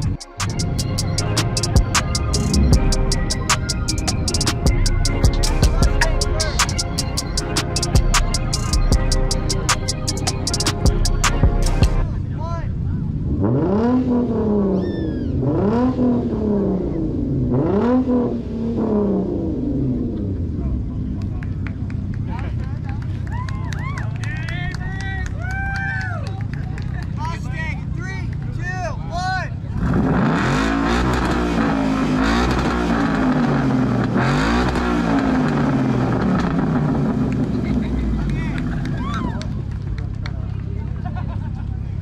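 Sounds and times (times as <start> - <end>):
car engine revving: 0.0 - 22.3, 29.6 - 40.3.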